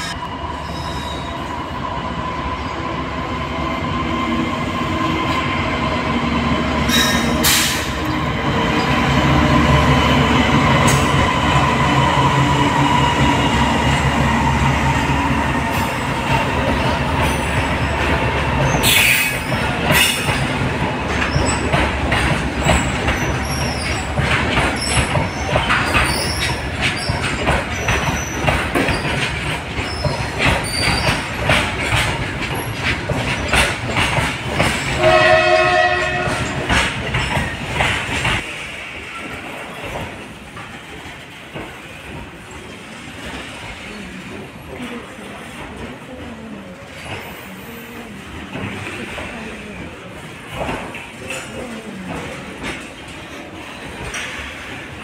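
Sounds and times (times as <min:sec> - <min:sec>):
freight train rumble: 0:00.0 - 0:55.0
wheels clicking over rail joints: 0:16.3 - 0:35.0, 0:46.8 - 0:55.0.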